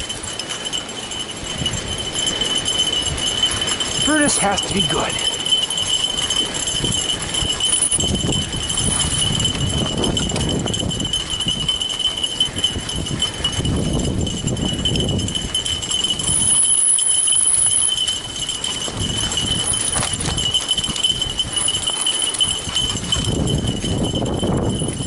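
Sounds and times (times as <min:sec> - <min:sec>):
bike tyres rumbling on trail: 0:00.0 - 0:25.0
dogs running footfalls: 0:18.0 - 0:25.0.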